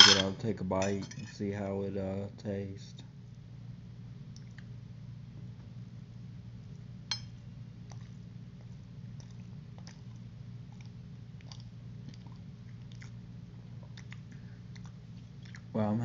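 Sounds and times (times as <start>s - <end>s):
fork clinking on ceramic plate: 0.0s - 1.3s, 7.1s - 7.4s
steady low hum: 0.0s - 16.0s
person chewing: 7.8s - 15.7s.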